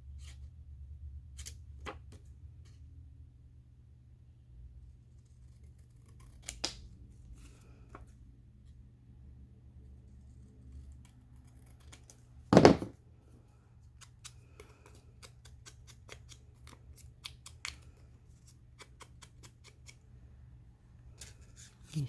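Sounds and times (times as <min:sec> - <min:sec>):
scissors snipping paper: 0:05.4 - 0:07.0, 0:10.7 - 0:12.2, 0:14.0 - 0:20.0
knock or rustle: 0:12.6 - 0:12.9.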